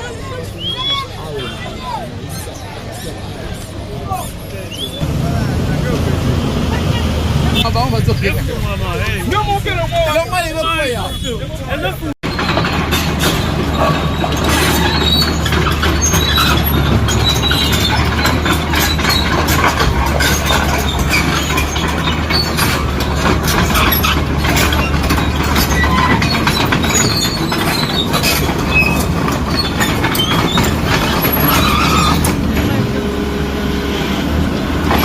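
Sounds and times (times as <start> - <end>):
diesel engine running: 4.8 - 10.3, 12.2 - 35.0
metallic clanking and scraping: 12.2 - 33.1, 34.8 - 35.0.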